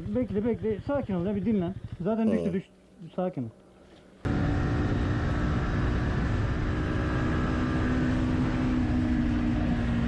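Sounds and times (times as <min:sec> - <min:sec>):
motorcycle engine running: 0:00.0 - 0:02.6.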